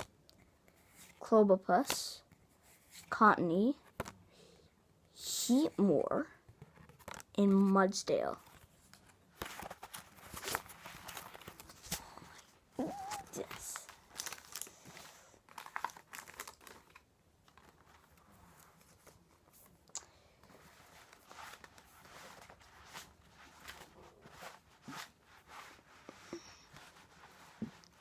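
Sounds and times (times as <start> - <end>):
cards and foil wrapper rustling: 9.4 - 18.2.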